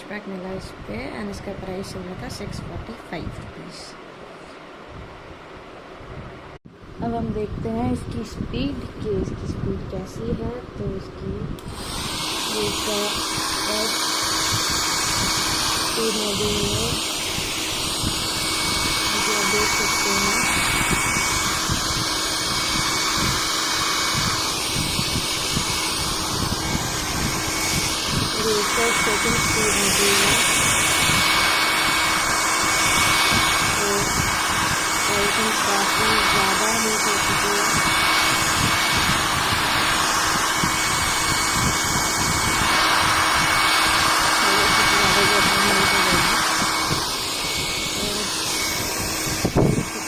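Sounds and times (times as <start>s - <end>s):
hair dryer blowing air: 11.6s - 50.0s.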